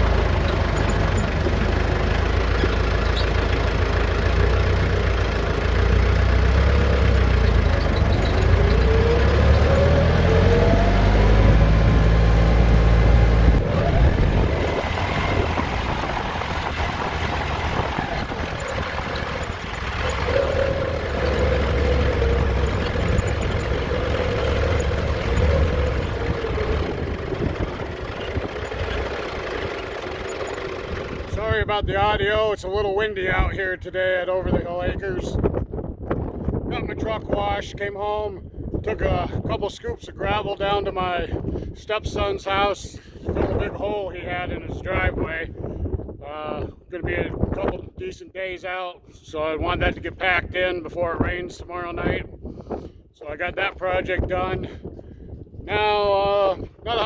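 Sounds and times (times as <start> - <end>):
vehicle engine revving: 0.0 - 31.4
wind rumble on microphone: 6.9 - 57.0.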